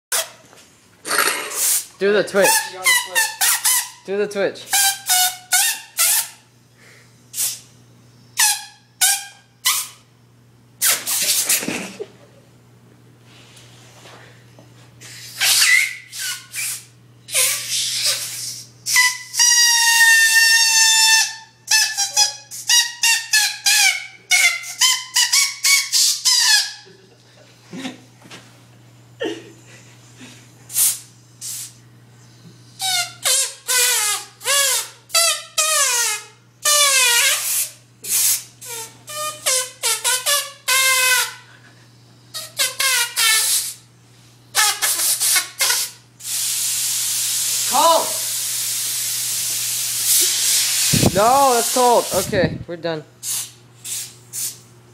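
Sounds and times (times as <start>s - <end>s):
compressed air hissing bursts: 1.1s - 1.9s, 7.3s - 7.8s, 16.1s - 19.0s, 30.7s - 31.9s, 37.3s - 38.5s, 44.8s - 52.4s, 53.2s - 54.7s
compressed air honking blasts: 8.3s - 10.0s, 15.2s - 26.6s, 32.8s - 41.5s, 42.4s - 43.8s, 44.5s - 46.6s.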